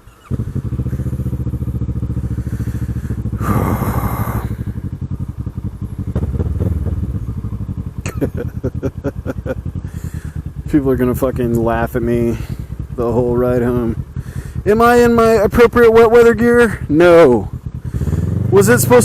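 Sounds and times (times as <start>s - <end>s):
motorcycle engine idling: 0.0s - 19.0s
rush of noise: 2.6s - 4.8s.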